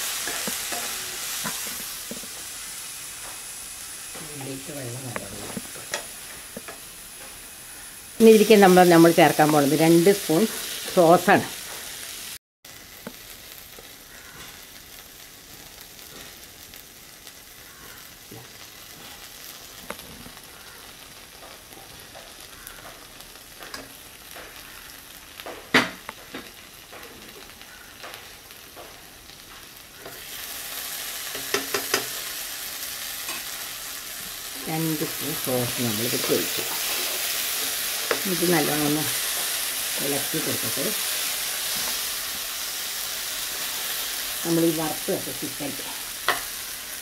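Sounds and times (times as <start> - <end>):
food sizzling in a pan: 0.0 - 47.0
spoon clicking on pan: 31.3 - 32.1.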